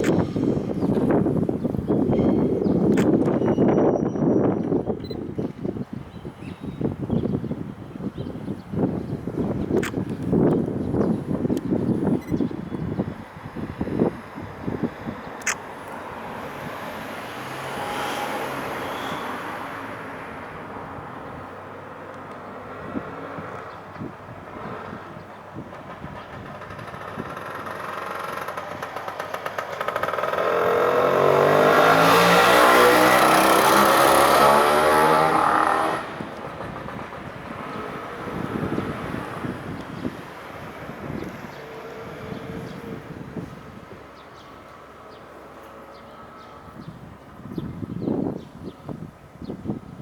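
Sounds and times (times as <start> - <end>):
freight train passing: 13.1 - 31.3, 35.5 - 47.4.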